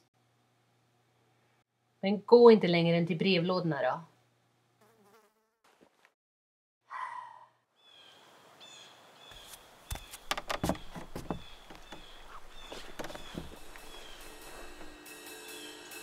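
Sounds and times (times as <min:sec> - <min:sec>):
small bird chirping: 0:07.8 - 0:15.0
boots knocking on wooden boards: 0:09.9 - 0:15.0.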